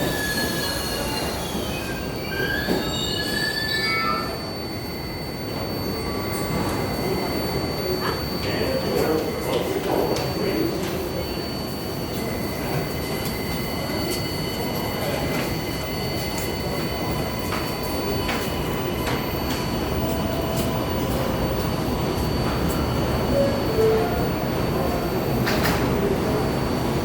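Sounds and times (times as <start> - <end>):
high wheel squeal: 0.0 - 7.8
train rumble: 0.0 - 27.0.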